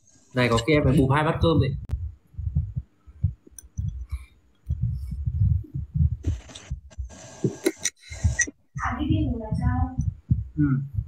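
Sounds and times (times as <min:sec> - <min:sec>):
muffled chewing thumps: 0:00.5 - 0:11.0
hissy mouth or breath noises: 0:03.8 - 0:08.6.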